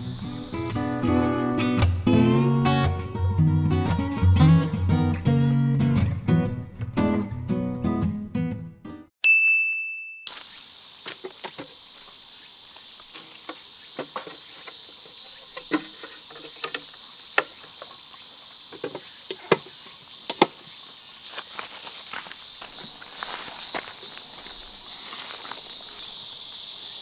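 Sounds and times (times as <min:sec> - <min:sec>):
insects chorus: 0:00.0 - 0:01.8, 0:10.3 - 0:27.0.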